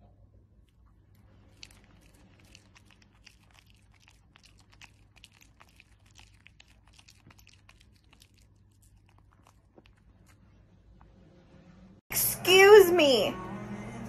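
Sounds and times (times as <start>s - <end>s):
dog chewing food: 0.6s - 10.6s.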